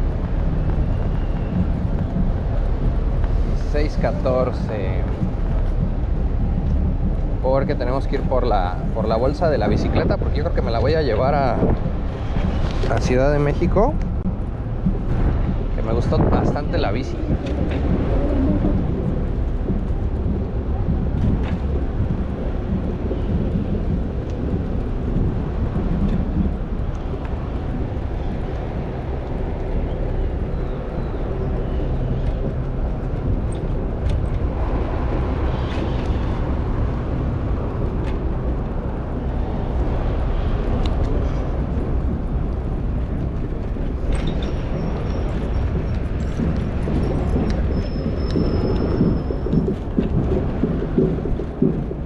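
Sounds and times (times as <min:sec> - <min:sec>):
traffic: 0:00.0 - 0:52.0
wind buffeting microphone: 0:00.0 - 0:52.0.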